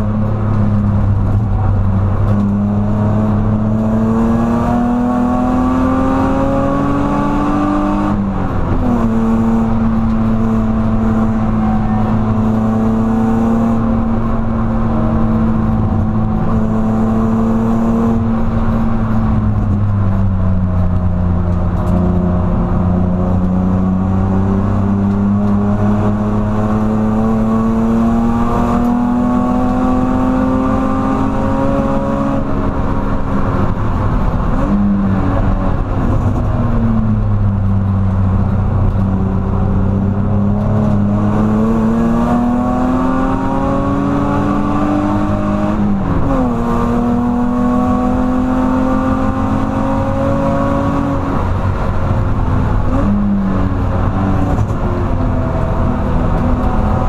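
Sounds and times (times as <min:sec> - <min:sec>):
car engine accelerating: 0:00.0 - 0:57.0
steady low drone: 0:08.0 - 0:48.3.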